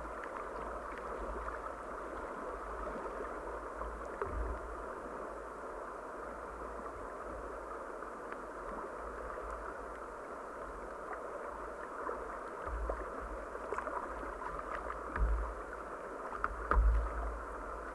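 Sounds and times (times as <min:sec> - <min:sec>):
flowing river water: 0:00.0 - 0:17.9
low thumps: 0:15.1 - 0:15.8, 0:16.5 - 0:17.6.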